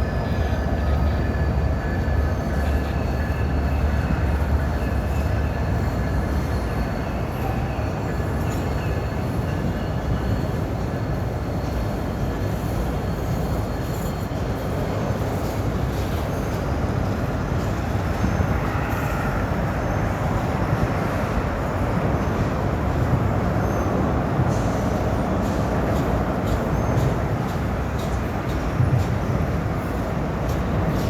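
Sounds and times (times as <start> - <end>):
train wheels rumbling on bridge: 0.0 - 31.0.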